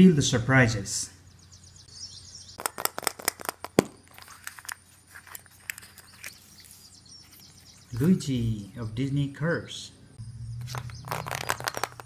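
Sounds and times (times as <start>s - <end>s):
plastic toy eggs clicking and tapping: 2.6s - 4.0s, 10.7s - 12.0s.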